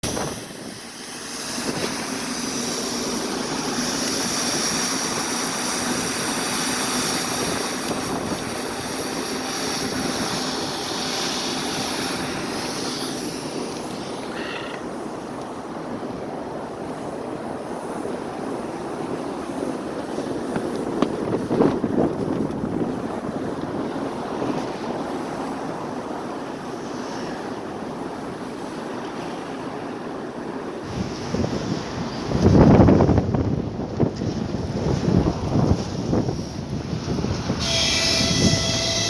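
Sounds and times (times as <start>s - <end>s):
city street traffic roar: 0.0s - 24.8s.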